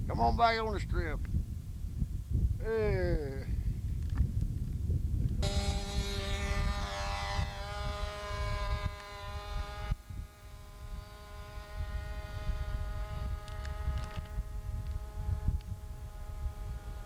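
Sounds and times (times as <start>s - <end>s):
wind rumbling on microphone: 0.0s - 17.0s
model airplane engine drone: 5.3s - 17.0s.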